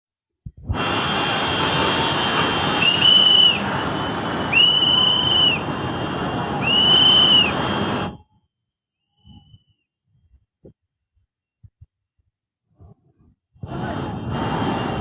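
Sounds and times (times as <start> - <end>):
long whistle blasts: 1.0 - 5.8, 6.5 - 9.8.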